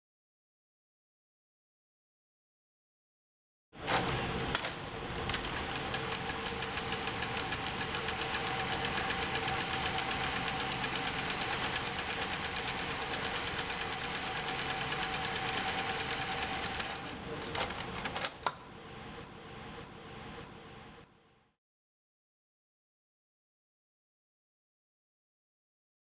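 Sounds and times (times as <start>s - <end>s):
sewing machine running: 3.8s - 18.2s.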